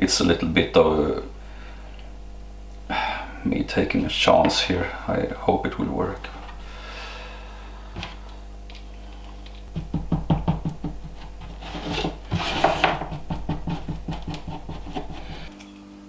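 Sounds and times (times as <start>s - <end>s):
stirring scraping in cup: 11.0s - 15.5s.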